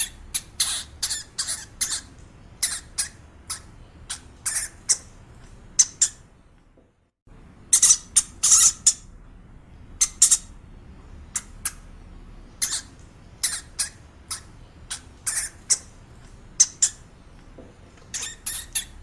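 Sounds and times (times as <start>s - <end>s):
bird squawking: 0.0s - 5.1s, 12.6s - 15.9s.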